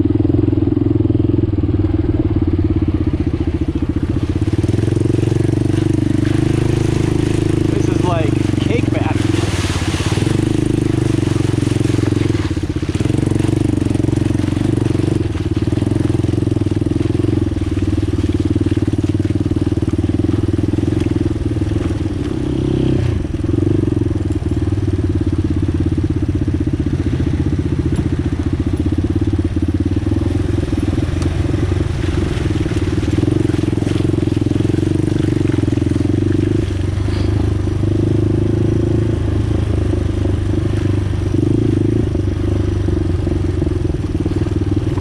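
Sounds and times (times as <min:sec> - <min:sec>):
atv engine running: 0:00.0 - 0:45.0.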